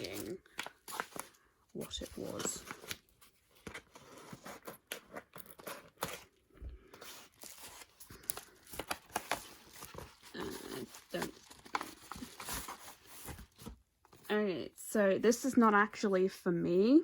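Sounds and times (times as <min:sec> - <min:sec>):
packaging rustling and crinkling: 0:00.0 - 0:13.9.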